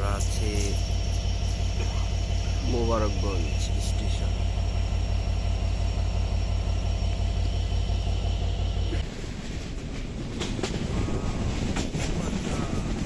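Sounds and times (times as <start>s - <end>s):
train wheel clacks: 0.0s - 4.3s, 8.7s - 13.0s
train rumbling: 0.0s - 13.0s.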